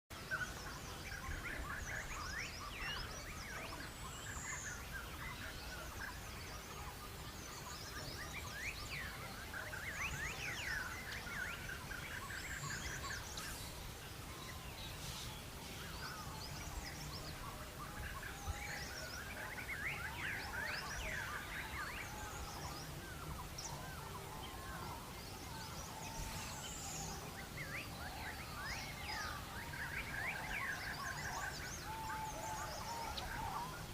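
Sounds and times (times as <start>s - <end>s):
birds chattering and chirping: 0.1s - 33.9s.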